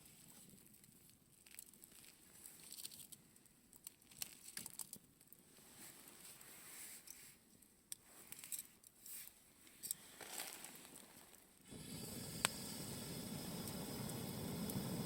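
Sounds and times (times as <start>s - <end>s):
campfire crackling: 10.2s - 15.0s
steady rushing hiss: 11.7s - 15.0s.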